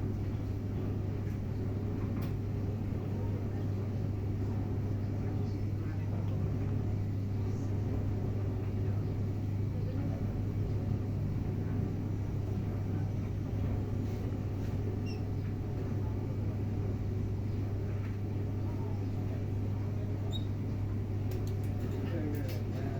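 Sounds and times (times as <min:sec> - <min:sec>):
low mechanical hum: 0:00.0 - 0:22.9.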